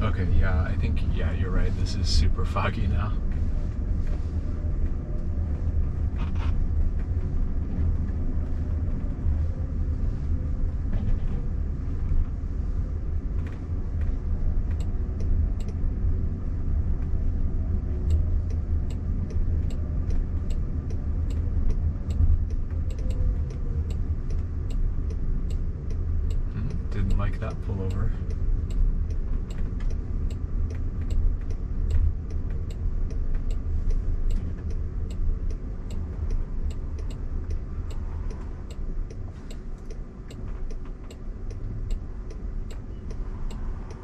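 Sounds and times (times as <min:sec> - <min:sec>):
road and tyre rumble: 0:00.0 - 0:44.0
turn signal ticking: 0:11.6 - 0:44.0.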